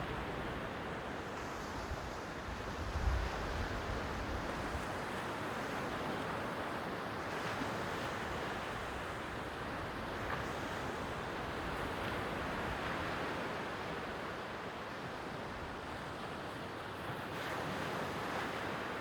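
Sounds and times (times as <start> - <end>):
wind rumble on microphone: 1.6 - 6.2.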